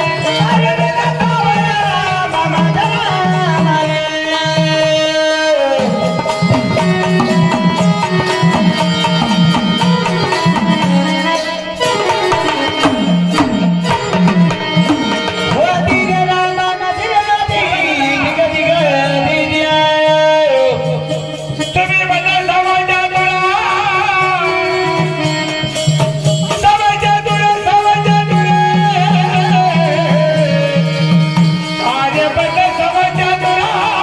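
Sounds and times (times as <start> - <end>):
sliding melody line: 5.7 - 34.0
hand drums steady beat: 5.8 - 16.5, 24.2 - 32.5.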